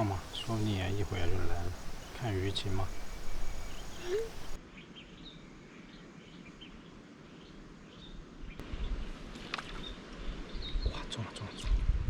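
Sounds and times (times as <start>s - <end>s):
riverside ambience: 0.0s - 4.6s
short bird chirps: 1.6s - 4.6s.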